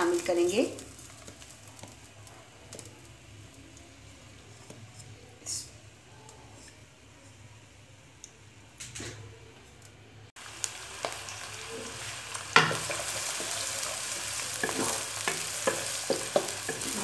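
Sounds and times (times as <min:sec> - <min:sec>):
onions frying sizzle: 0:00.0 - 0:17.0
spatula scraping pan: 0:12.8 - 0:17.0.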